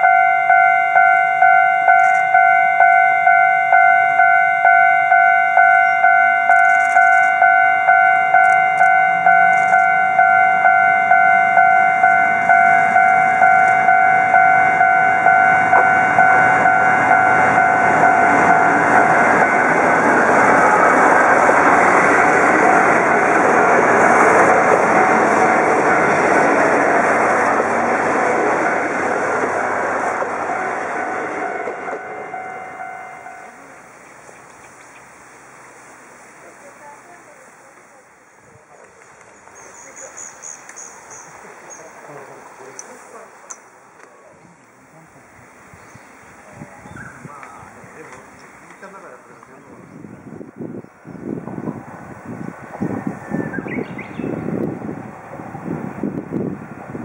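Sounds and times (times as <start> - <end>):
level-crossing bell ringing: 0.0 - 20.1, 30.4 - 33.8
train engine and wheels passing: 0.0 - 57.0.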